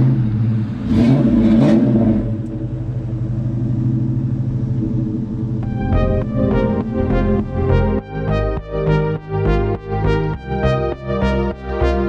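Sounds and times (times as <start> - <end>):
vehicle engine revving and idling: 0.0 - 12.0.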